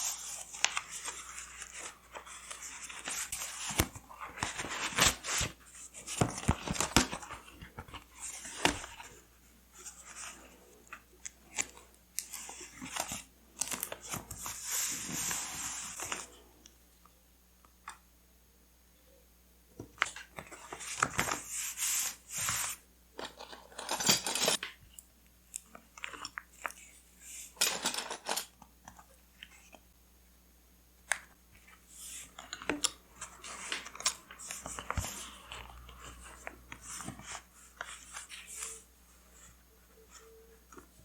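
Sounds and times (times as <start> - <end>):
paper crinkling and rustling: 0.0 - 16.4, 20.0 - 24.7, 31.6 - 41.0.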